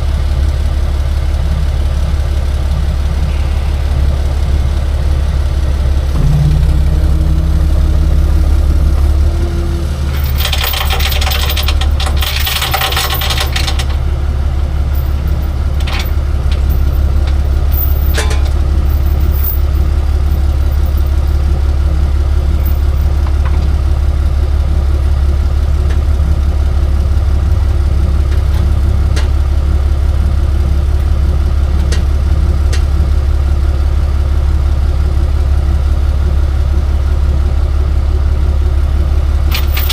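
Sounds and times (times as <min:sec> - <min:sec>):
truck engine idling: 0:00.0 - 0:39.9
metallic rattling and clanking: 0:05.7 - 0:24.0, 0:39.5 - 0:39.9
sharp metal clanks: 0:06.2 - 0:14.0, 0:14.9 - 0:21.2, 0:39.5 - 0:39.9.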